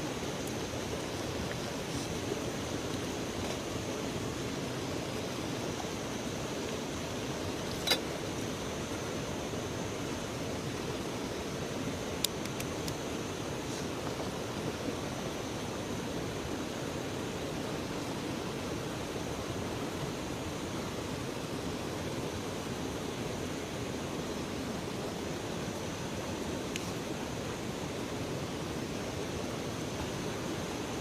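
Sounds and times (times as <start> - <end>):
river water rushing: 0.0 - 31.0
faint ticks: 12.2 - 13.0.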